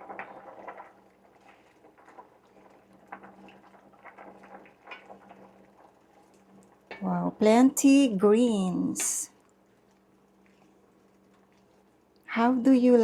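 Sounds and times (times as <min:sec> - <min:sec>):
soup bubbling in a pot: 0:00.0 - 0:07.0, 0:09.3 - 0:12.3.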